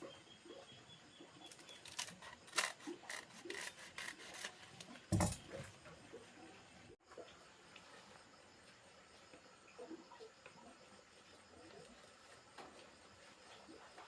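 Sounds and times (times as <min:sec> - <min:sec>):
rubbing and scraping strokes: 0:01.8 - 0:05.0.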